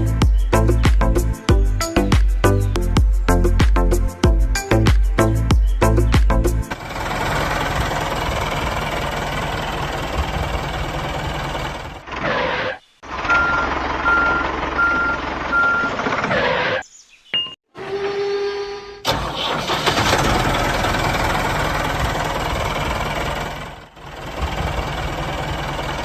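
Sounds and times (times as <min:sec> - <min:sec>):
vehicle engine running: 0:06.1 - 0:16.4, 0:19.1 - 0:26.0
vehicle reversing beeper: 0:13.2 - 0:16.0.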